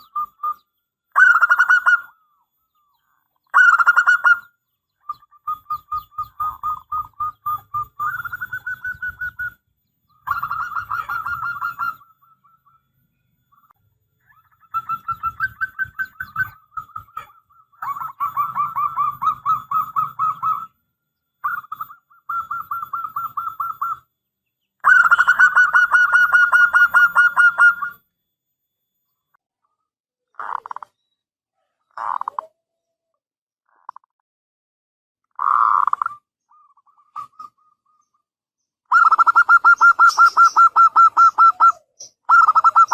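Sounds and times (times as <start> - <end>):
dove cooing: 0.0 - 12.9, 13.6 - 20.8, 21.4 - 24.1, 24.8 - 28.0, 38.9 - 42.9.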